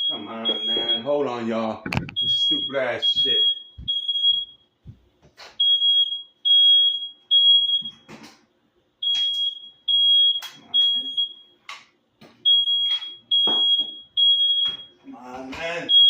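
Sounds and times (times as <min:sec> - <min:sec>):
smoke alarm beeping: 0:00.0 - 0:01.4, 0:02.0 - 0:04.8, 0:05.6 - 0:08.1, 0:09.0 - 0:11.7, 0:12.4 - 0:15.0, 0:15.6 - 0:16.0.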